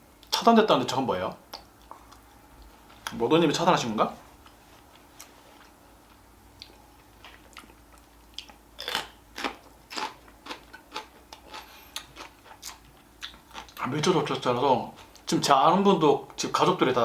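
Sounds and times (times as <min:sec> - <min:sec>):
person chewing food: 0:01.5 - 0:03.1, 0:04.4 - 0:13.9.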